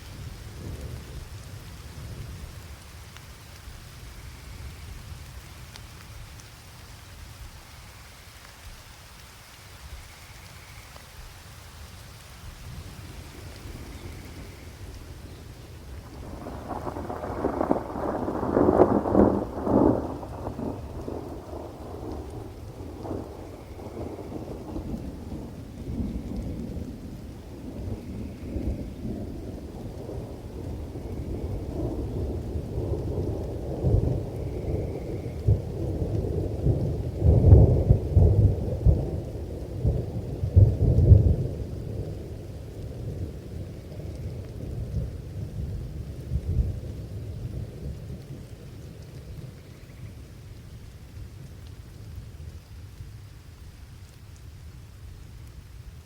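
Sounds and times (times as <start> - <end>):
rain falling: 0.0 - 56.0
rolling thunder: 12.6 - 50.2.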